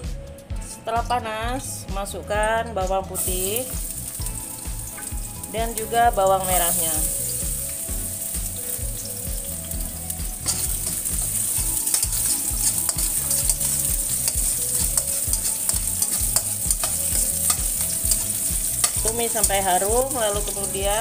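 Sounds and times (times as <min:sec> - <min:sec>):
garlic sizzling in hot oil: 0:03.1 - 0:21.0
metal spatula scraping pan: 0:10.4 - 0:20.9.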